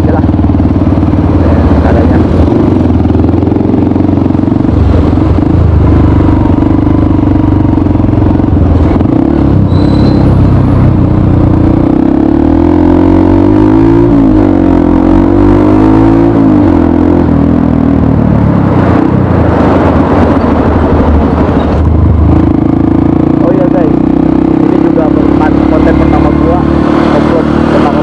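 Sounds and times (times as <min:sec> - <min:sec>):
motorcycle engine running loud: 0:00.0 - 0:28.0.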